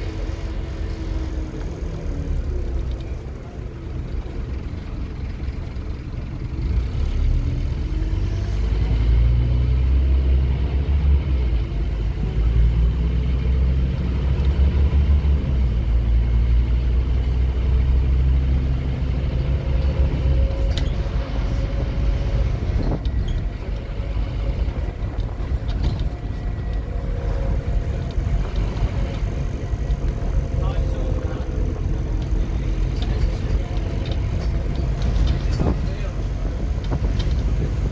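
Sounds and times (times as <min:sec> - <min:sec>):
bus diesel engine accelerating: 0:00.0 - 0:37.9.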